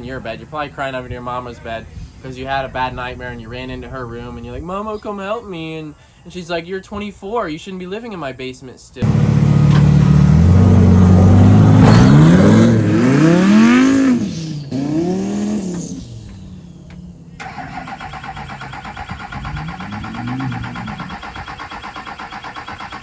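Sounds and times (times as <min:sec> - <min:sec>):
higher buzzy engine running: 0:09.0 - 0:21.6
truck engine revving and idling: 0:09.0 - 0:23.0.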